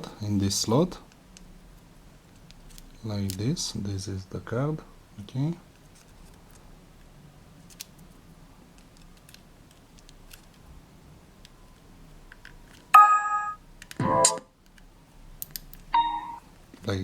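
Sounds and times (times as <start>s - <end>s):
bright electronic chime: 13.0s - 14.4s, 16.0s - 16.4s.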